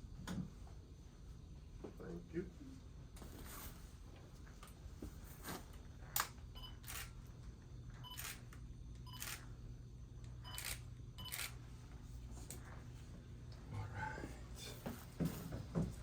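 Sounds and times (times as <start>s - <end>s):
camera shutter clicks: 8.1s - 8.4s, 9.1s - 9.4s, 10.5s - 11.6s.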